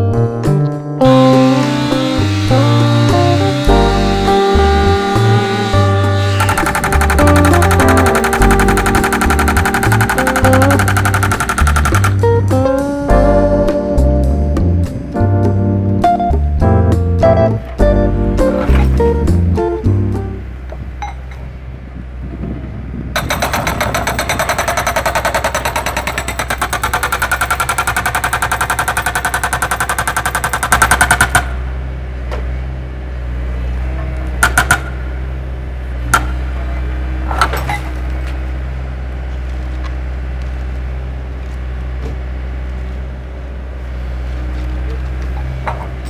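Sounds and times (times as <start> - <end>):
metallic clanks: 6.4 - 12.3, 23.2 - 31.8
rattling hammering clatter: 6.4 - 12.4, 17.6 - 19.8, 23.2 - 31.9, 33.9 - 35.4.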